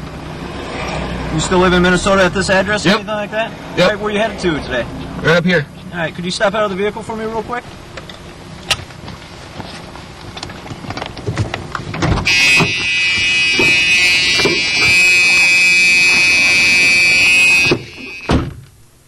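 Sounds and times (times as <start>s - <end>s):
clicks and rustles of movement: 8.0s - 12.9s
car warning buzzer: 12.2s - 18.4s.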